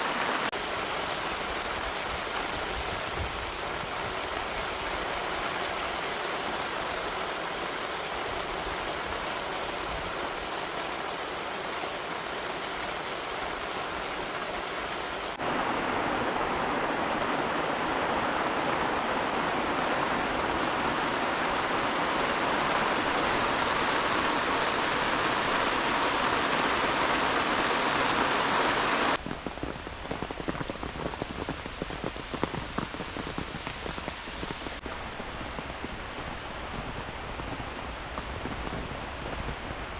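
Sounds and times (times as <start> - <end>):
heavy rain falling: 0.0 - 39.9
patter of rain drops: 0.0 - 39.9.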